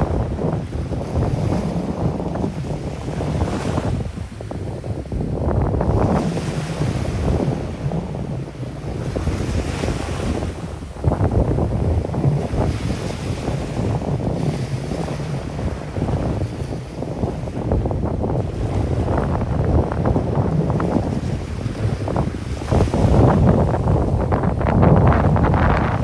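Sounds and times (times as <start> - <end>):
waves washing onto sand: 0.0 - 26.0
wind buffeting microphone: 0.0 - 26.0.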